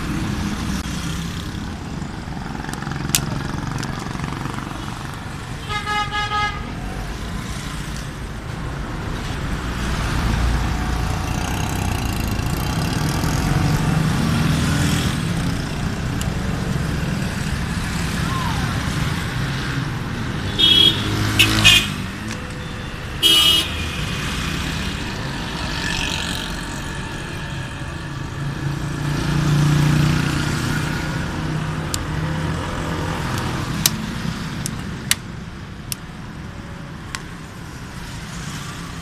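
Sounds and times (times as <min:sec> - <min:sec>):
vehicle engine noise: 0:00.0 - 0:39.0
vehicle horn toots: 0:20.5 - 0:22.0, 0:23.2 - 0:23.8.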